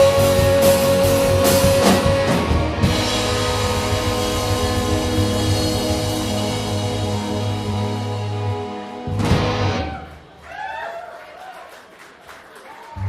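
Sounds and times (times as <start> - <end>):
drums and cymbals: 0.0 - 9.8.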